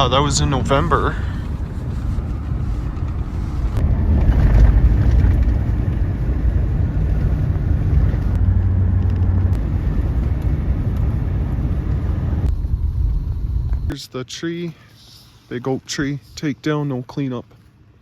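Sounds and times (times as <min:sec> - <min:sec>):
vehicle road noise rumble: 0:00.0 - 0:18.0.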